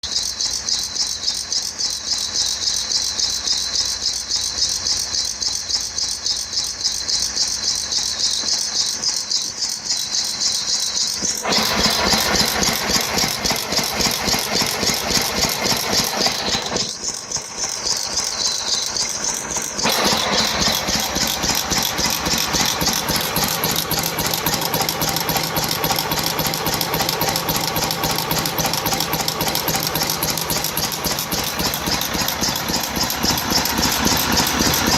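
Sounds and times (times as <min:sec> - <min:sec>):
stationary engine clattering: 0:00.0 - 0:34.9.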